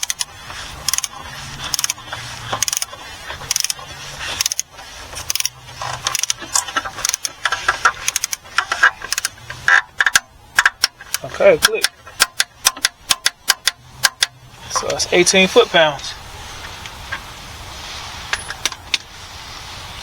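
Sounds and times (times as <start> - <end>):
torque wrench ratcheting clicks: 0.0 - 15.0.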